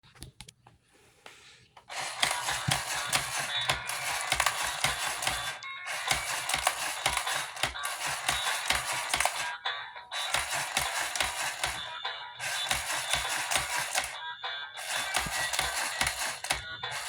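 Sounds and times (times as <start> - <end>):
sharp clicks: 1.9 - 9.5
tinny music from toy speaker: 1.9 - 17.0.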